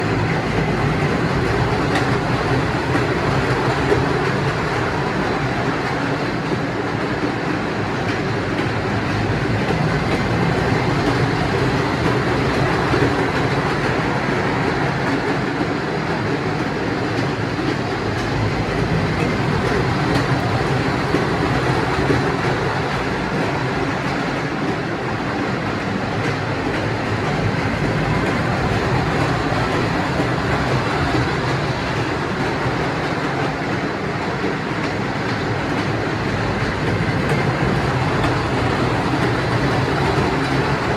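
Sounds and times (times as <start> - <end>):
ride train rumbling: 0.0 - 40.9.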